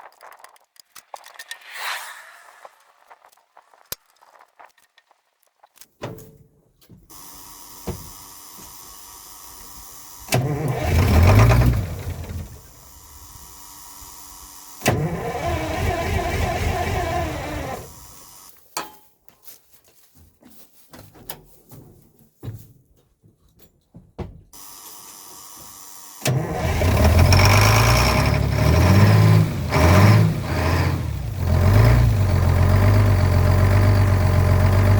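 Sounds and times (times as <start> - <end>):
starter cranking diesel engine: 7.1 - 18.5, 24.6 - 34.9.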